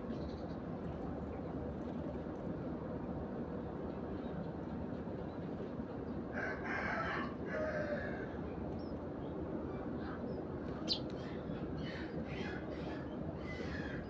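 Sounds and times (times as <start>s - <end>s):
low background hum: 0.0s - 14.0s
rooster crowing: 6.3s - 8.3s
sparrow chirp: 10.8s - 11.1s.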